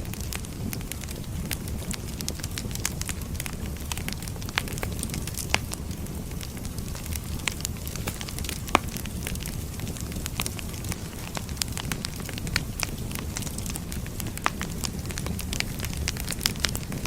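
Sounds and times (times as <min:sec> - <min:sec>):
low steady fire rumble: 0:00.0 - 0:17.0
wood fire crackling: 0:00.0 - 0:17.0.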